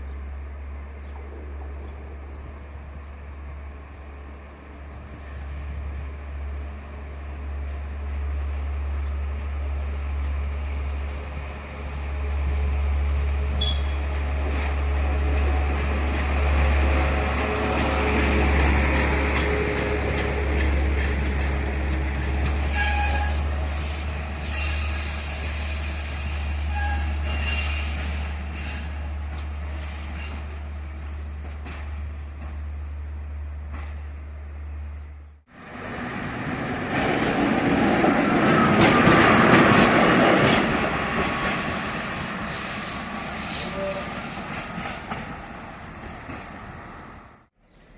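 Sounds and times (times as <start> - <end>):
train running noise: 0.0 - 35.0, 35.6 - 47.4
wheels squealing on rails: 13.6 - 14.2, 22.4 - 30.7, 38.2 - 44.8.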